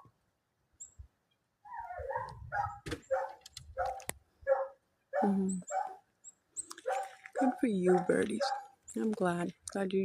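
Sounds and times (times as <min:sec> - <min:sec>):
dog barking: 0:01.7 - 0:06.0, 0:06.8 - 0:08.8.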